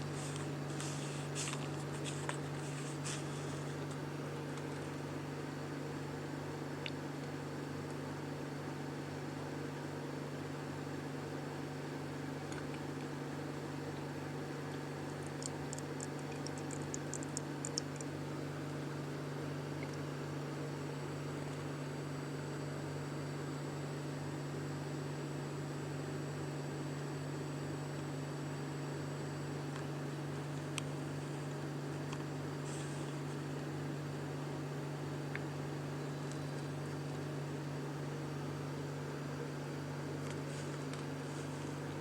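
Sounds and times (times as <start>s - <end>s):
steady low hum: 0.0s - 42.0s
small high ticks: 15.1s - 18.2s.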